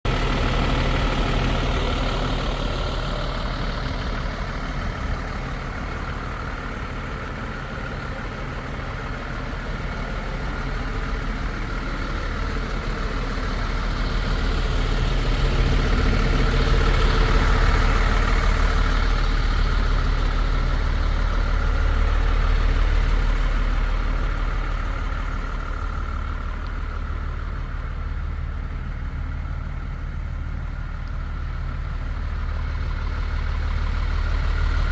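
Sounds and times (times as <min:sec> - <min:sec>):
diesel truck engine idling: 0:00.0 - 0:34.9.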